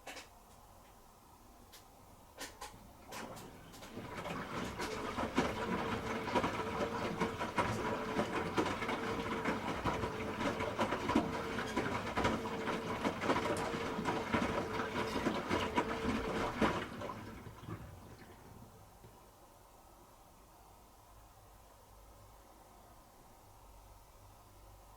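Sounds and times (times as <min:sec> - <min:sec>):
irregular clicks and knocks: 0:00.0 - 0:01.0, 0:01.7 - 0:03.9
washing machine motor hum: 0:02.8 - 0:19.2.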